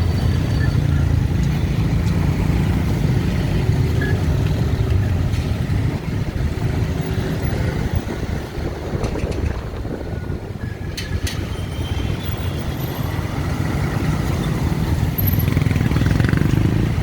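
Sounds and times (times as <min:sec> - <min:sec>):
motorbikes and cars passing: 0:00.0 - 0:17.0.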